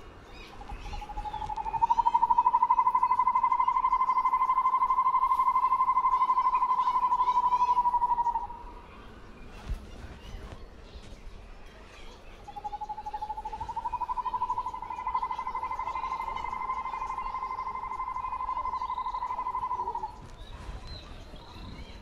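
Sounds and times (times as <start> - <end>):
bird trilling: 0.3 - 8.7, 12.4 - 20.5.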